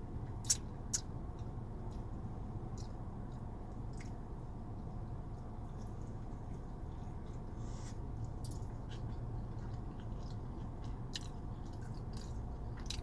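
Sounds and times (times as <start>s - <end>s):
person chewing food: 2.7s - 13.0s.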